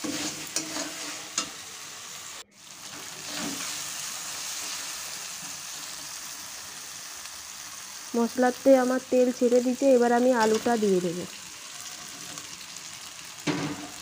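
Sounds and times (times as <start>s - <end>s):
metal spatula scraping a pan: 0.0s - 1.8s, 2.7s - 6.2s, 11.6s - 12.6s
spice paste sizzling in oil: 0.0s - 14.0s.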